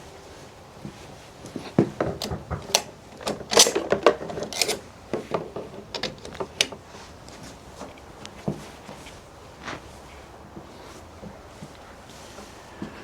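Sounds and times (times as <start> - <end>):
tools clicking and clattering: 2.0 - 6.8.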